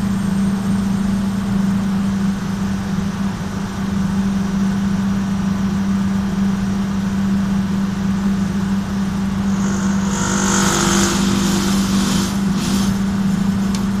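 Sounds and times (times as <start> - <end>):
electric motor humming: 9.1 - 14.0.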